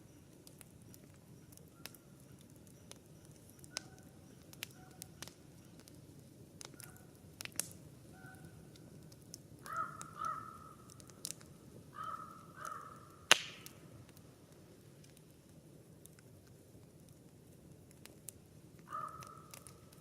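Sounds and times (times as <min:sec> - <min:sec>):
campfire crackling: 0:00.0 - 0:20.0
bird calling: 0:09.6 - 0:10.9, 0:12.0 - 0:13.2, 0:18.9 - 0:19.5.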